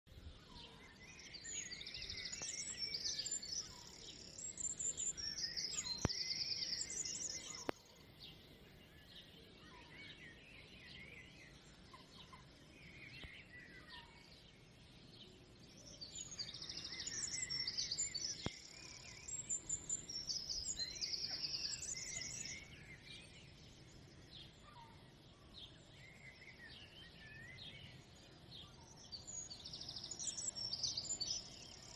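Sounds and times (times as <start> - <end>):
faint outdoor hiss: 0.2 - 31.9
songbirds chirping and singing: 0.2 - 31.9.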